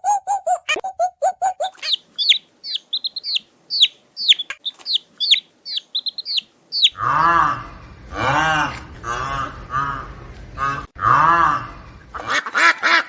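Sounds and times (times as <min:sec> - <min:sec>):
chicks peeping: 0:00.0 - 0:07.0
farm bird calling: 0:00.0 - 0:07.4.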